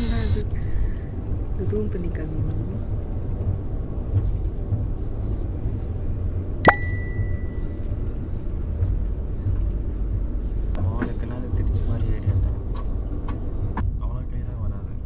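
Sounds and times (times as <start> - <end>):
train rumbling: 0.0 - 15.0
sharp metallic clink: 6.7 - 7.7.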